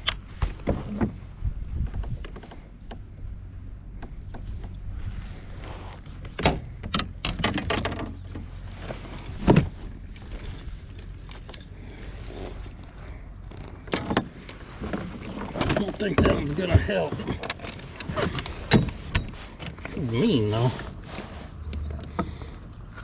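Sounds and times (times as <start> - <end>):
low wind rumble: 0.0 - 23.0
gear clicking and rattling: 6.3 - 19.0.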